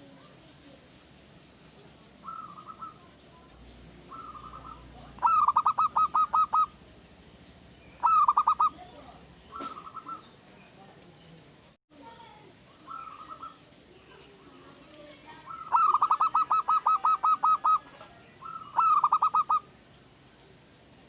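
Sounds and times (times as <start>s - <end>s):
dove cooing: 2.2s - 3.1s, 4.0s - 6.8s, 8.0s - 10.3s, 12.8s - 13.7s, 15.4s - 19.7s.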